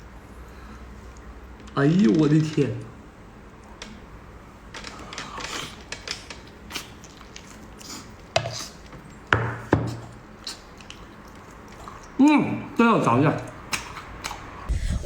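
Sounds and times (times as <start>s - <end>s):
person chewing food: 4.8s - 12.8s, 13.4s - 14.7s.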